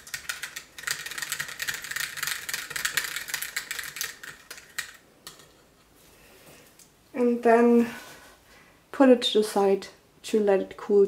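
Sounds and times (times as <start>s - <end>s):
whisk rattling in a container: 0.0s - 5.6s.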